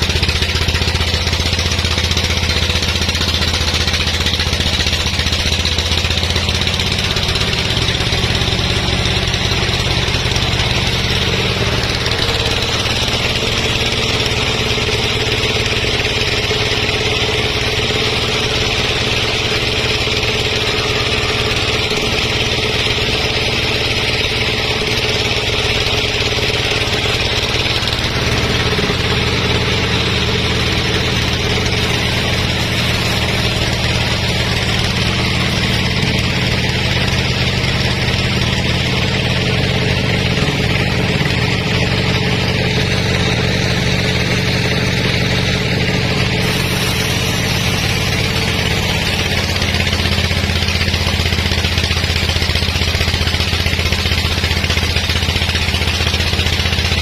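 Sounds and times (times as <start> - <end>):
sawmill engine running: 0.0 - 57.0
high hiss: 46.4 - 49.0.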